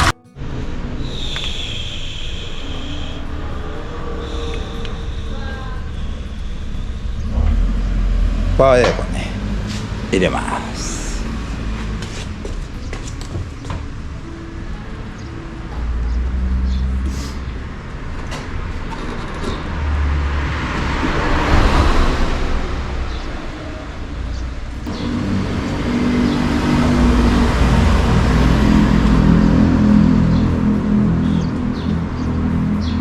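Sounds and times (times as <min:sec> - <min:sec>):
rushing hiss: 0:00.0 - 0:12.4
car engine running: 0:00.0 - 0:33.0.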